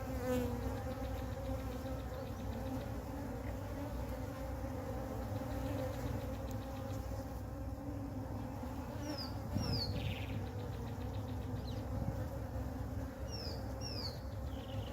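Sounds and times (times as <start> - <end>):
bee swarm buzzing: 0.0 - 14.9
bird chirping: 9.0 - 11.9, 13.3 - 14.9.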